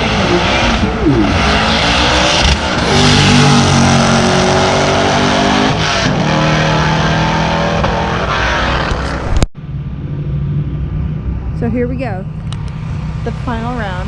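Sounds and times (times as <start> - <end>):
drag car engine at high revs: 0.0 - 9.3
engine running steadily: 8.9 - 14.0.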